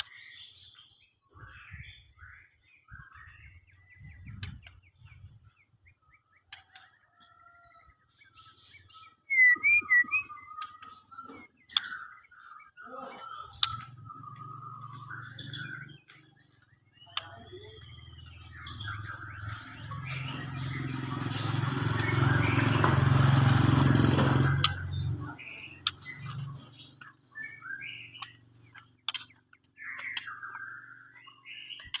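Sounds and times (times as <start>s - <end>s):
bird chirps and ticking calls: 0.0s - 32.0s
loud steady rumble: 17.2s - 27.1s.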